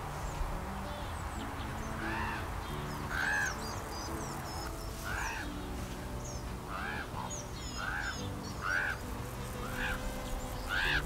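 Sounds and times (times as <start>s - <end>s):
small birds chirping: 0.0s - 11.0s
bird giving loud arched call: 3.1s - 3.6s, 5.0s - 5.6s, 6.7s - 11.0s.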